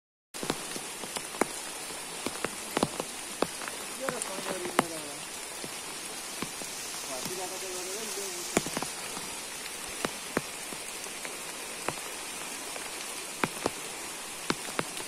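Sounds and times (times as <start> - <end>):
heavy rain hissing: 0.4 - 15.0
large drops tapping: 13.4 - 13.8.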